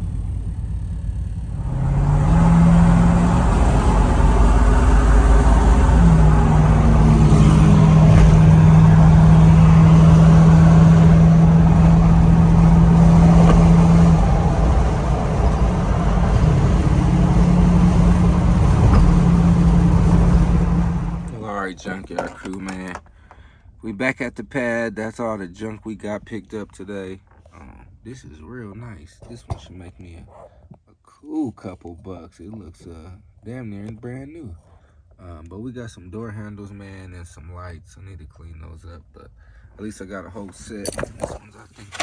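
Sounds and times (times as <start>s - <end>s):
road noise: 0.0s - 23.8s, 40.4s - 42.0s
vehicle engine drone: 0.0s - 26.8s.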